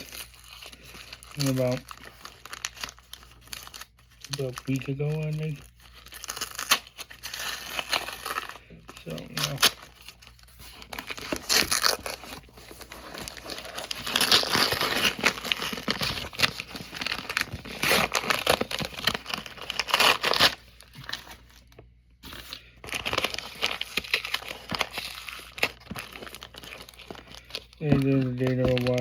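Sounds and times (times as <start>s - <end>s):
paper wrapper crinkling: 0.0s - 29.0s.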